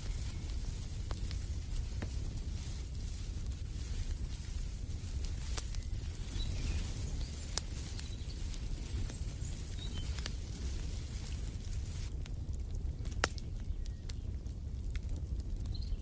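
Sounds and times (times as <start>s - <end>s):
wood fire crackling: 0.0s - 16.0s
faint bird chirps: 5.6s - 10.3s.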